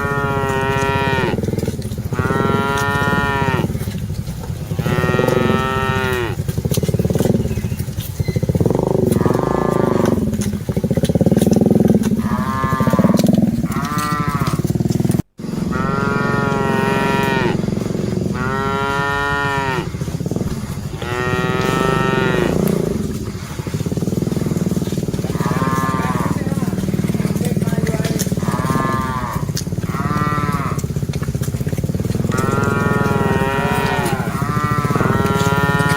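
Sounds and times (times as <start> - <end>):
cattle mooing: 0.0 - 35.9
steady low rumble: 14.9 - 35.8.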